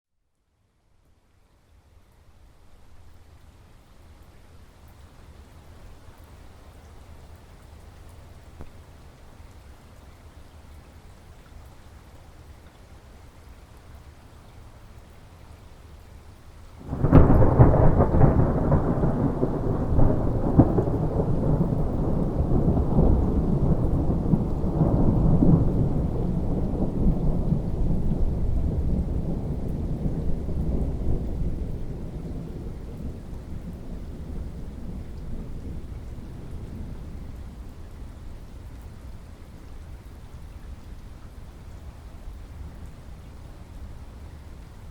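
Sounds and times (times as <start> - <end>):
steady rain: 0.3 - 44.9
thunder clap: 16.8 - 37.0
thunder rumbling: 16.8 - 38.4.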